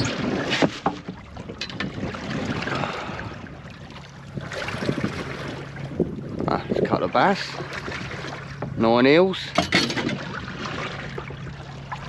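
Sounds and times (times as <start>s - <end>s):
wind buffeting microphone: 1.2s - 9.0s.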